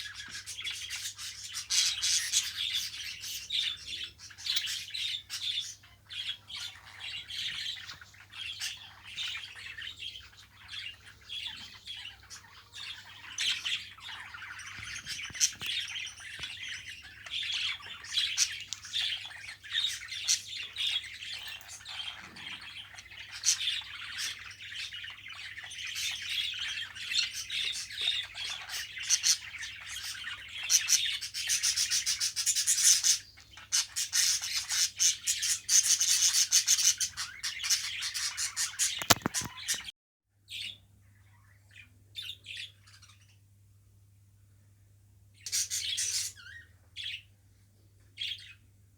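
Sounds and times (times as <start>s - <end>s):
budgerigar chattering: 0.0s - 39.9s
sharp clicks: 39.0s - 39.5s.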